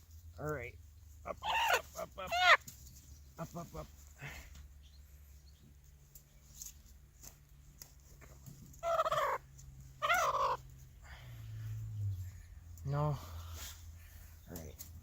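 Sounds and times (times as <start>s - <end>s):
hen squawking: 1.2s - 2.7s, 8.8s - 10.7s.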